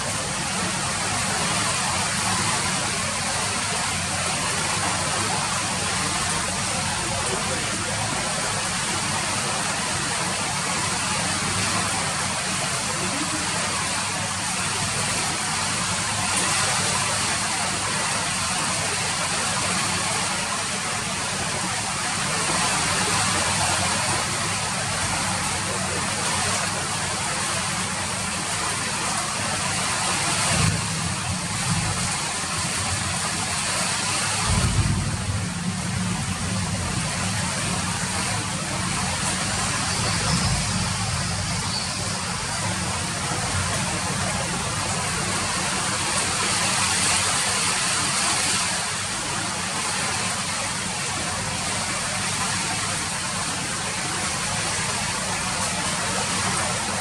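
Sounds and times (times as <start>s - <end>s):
steady rain falling: 0.0s - 57.0s
low rumble: 34.4s - 42.0s.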